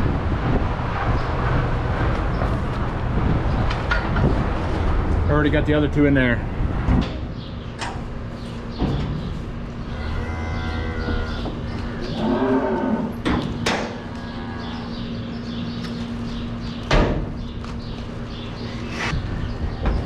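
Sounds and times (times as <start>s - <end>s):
steady low hum: 0.0s - 12.2s, 13.0s - 20.0s
cow mooing: 9.9s - 13.2s, 14.0s - 15.0s.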